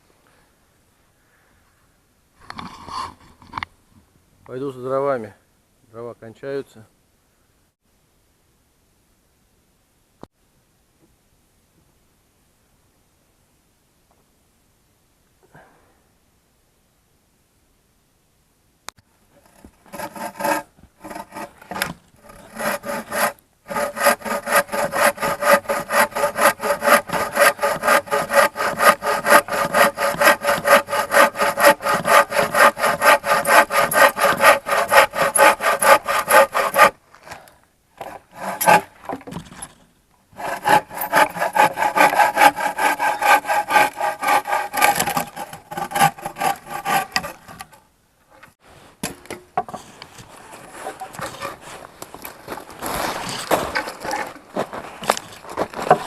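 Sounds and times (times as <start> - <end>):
hand saw cutting wood: 19.4 - 37.0, 38.0 - 39.0, 40.4 - 47.8, 50.5 - 51.8.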